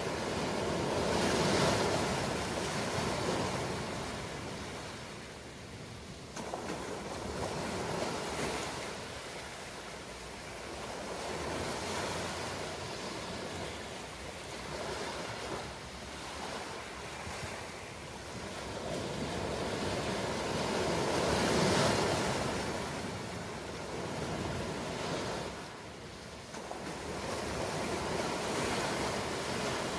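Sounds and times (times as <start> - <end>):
ocean waves surging: 6.4 - 29.9.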